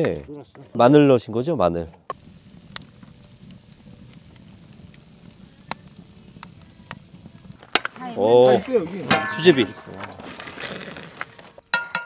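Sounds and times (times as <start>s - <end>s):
low fire rumble: 2.1s - 11.6s
wood fire popping: 2.1s - 12.0s.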